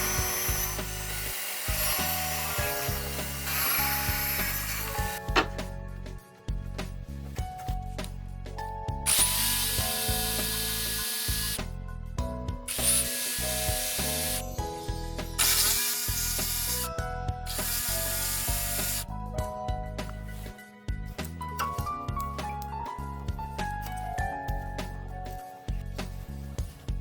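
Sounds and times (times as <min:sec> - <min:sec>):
power tool running: 0:00.0 - 0:05.6, 0:09.1 - 0:11.7, 0:12.7 - 0:14.5, 0:15.2 - 0:16.9, 0:17.5 - 0:19.1
background music: 0:00.0 - 0:27.0.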